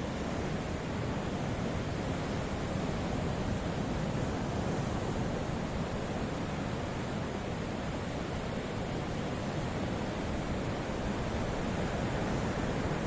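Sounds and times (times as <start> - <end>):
ocean waves washing: 8.8 - 13.0.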